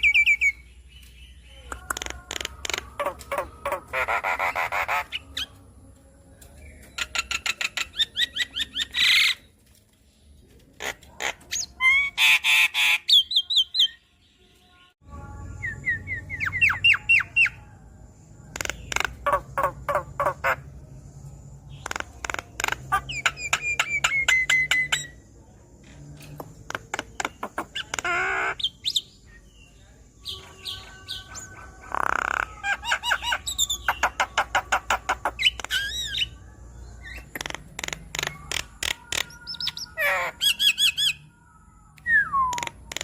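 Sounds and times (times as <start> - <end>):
bird singing clicks and whistles: 0.0 - 3.8, 18.5 - 19.3, 21.8 - 25.2, 33.6 - 36.3, 37.0 - 39.9, 41.9 - 43.0.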